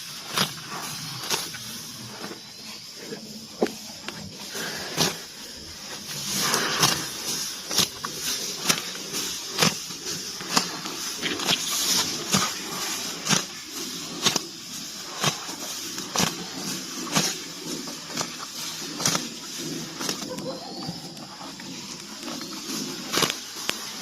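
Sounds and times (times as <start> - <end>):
grass tearing: 0.0 - 24.0.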